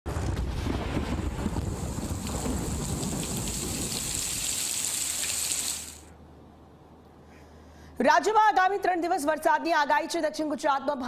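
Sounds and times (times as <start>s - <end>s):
thunder rumble: 0.1s - 5.0s
heavy rain: 0.1s - 6.1s.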